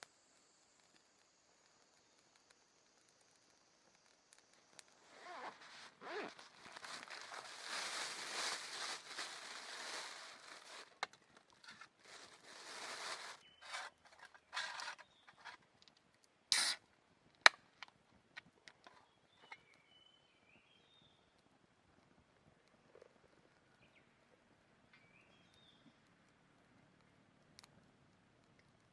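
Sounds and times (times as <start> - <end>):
rustling and handling noises: 4.9 - 16.0.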